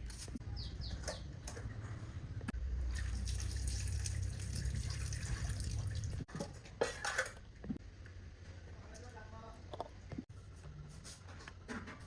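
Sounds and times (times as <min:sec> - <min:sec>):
water running and dripping: 0:02.9 - 0:06.3.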